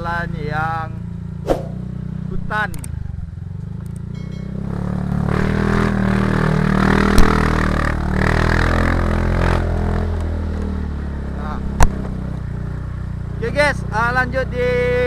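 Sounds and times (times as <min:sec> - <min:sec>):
motorcycle engine running: 0:00.0 - 0:15.0
sharp knock: 0:01.5 - 0:01.8.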